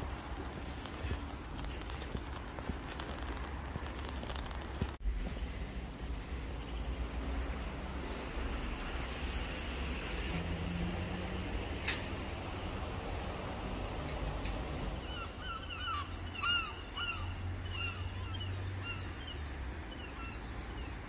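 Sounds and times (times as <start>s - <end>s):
arched bird calls: 15.0s - 19.4s.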